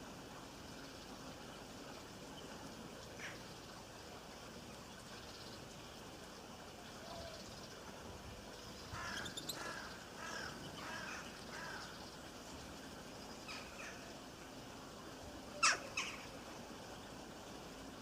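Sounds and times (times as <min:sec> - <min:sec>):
faint rain hiss: 0:00.0 - 0:18.0
birds calling: 0:08.5 - 0:14.2, 0:15.6 - 0:17.1.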